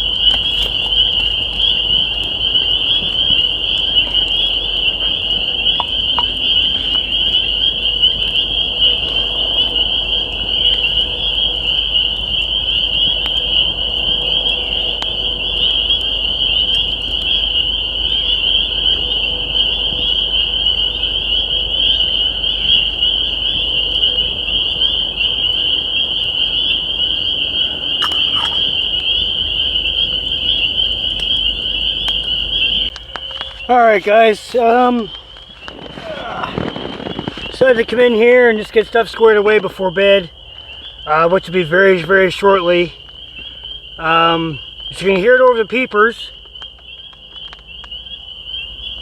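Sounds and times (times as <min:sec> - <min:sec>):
chorus of frogs peeping: 0:00.0 - 0:49.0.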